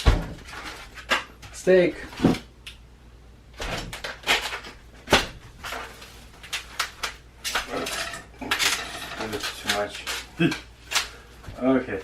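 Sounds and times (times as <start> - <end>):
packaging rustling: 3.7 - 12.0.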